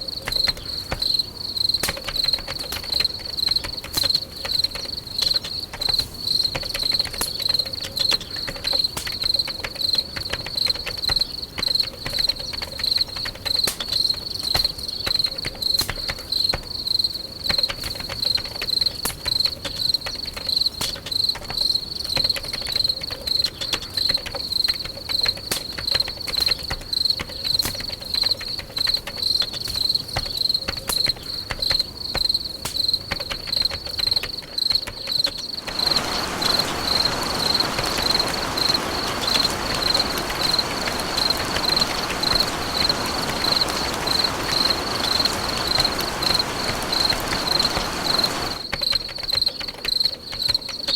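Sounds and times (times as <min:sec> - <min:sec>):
cricket chirping: 0:00.0 - 0:50.9
steady hiss: 0:35.6 - 0:48.7.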